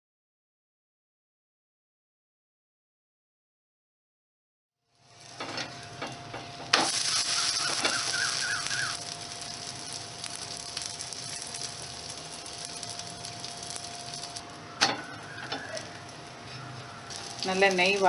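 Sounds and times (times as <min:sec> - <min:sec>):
flatbread sizzling: 0:04.9 - 0:18.0.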